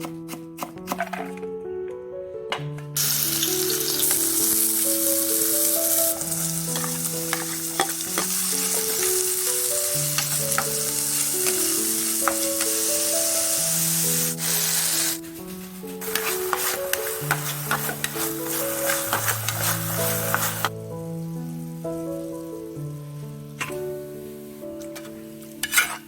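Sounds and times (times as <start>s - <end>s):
food sizzling in oil: 3.0s - 26.0s.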